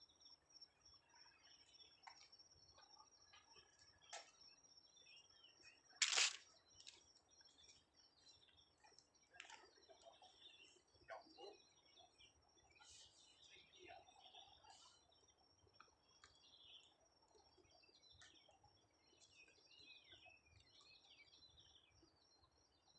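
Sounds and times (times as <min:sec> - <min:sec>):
birds chirping: 0:01.0 - 0:22.2
noisy scuff: 0:06.0 - 0:06.4.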